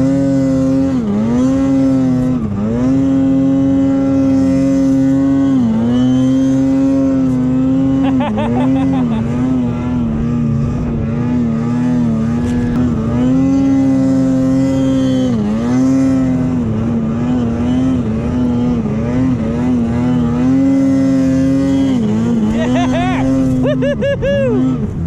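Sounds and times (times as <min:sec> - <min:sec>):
snowmobile engine running hard: 0:00.0 - 0:25.0.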